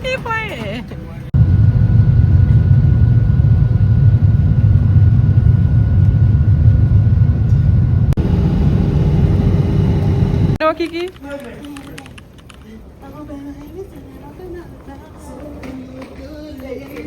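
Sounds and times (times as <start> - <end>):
airliner cabin rumble: 1.2 - 10.6
faint steady hum: 1.4 - 10.6.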